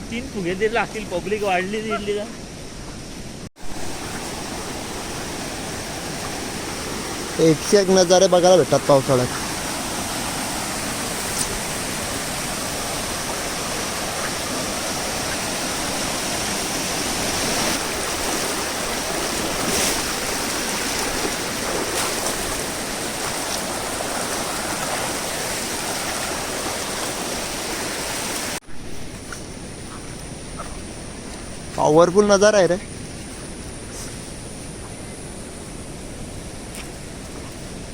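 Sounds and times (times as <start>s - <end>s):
fast-flowing water rushing: 3.5s - 28.6s.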